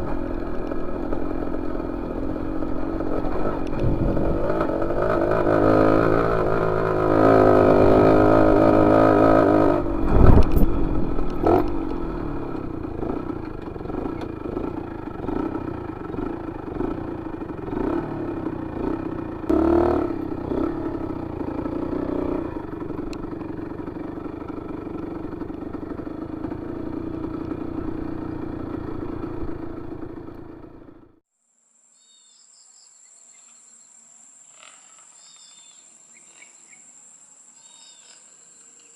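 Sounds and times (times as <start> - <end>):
motorcycle engine running: 0.0 - 31.2
faint insect chirping: 31.3 - 38.9.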